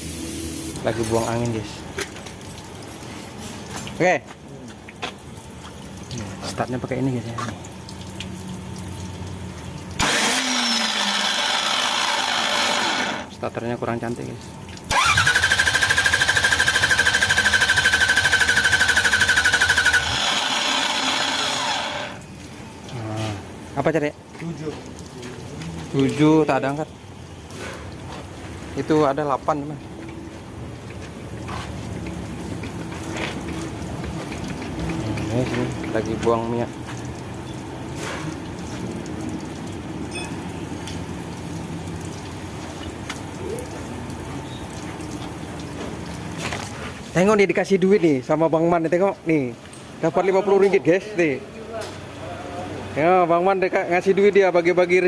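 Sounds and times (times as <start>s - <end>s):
oil flowing out: 0.0s - 47.2s
starter motor cranking engine: 10.0s - 13.3s, 14.9s - 22.2s.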